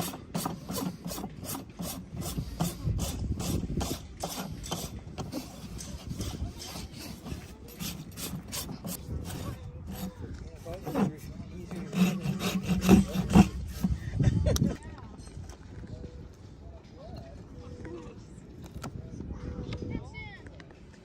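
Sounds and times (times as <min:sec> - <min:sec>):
rasp filing a horse's hoof: 0:00.0 - 0:14.2.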